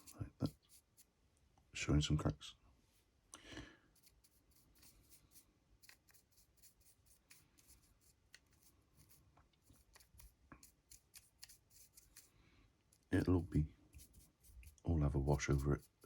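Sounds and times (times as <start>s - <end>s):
paintbrush dabbing and dragging: 0.0s - 1.2s, 3.9s - 16.0s.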